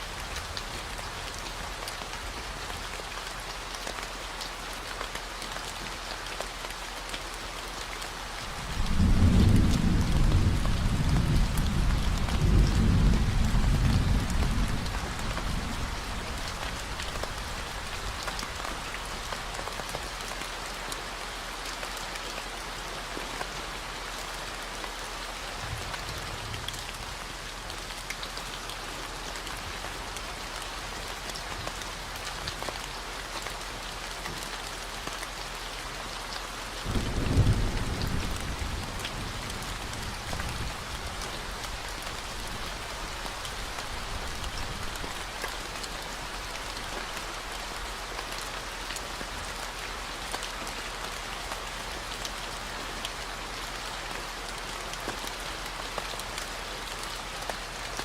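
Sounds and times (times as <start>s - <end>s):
steady rain: 0.0s - 58.0s
thunder rolling: 8.7s - 15.9s, 36.9s - 40.8s.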